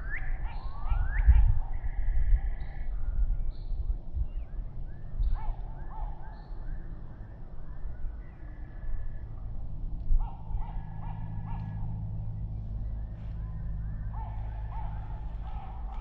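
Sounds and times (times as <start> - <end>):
steady low rumble: 7.0 - 16.0.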